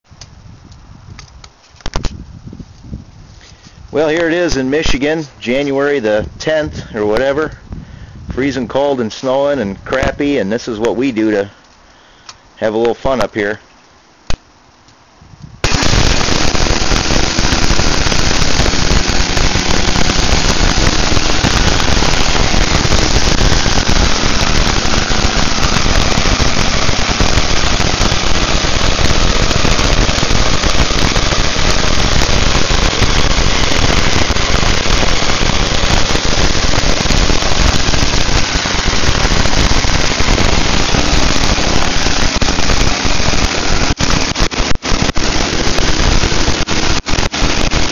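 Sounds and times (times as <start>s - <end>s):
motorcycle engine running: 15.7s - 47.9s.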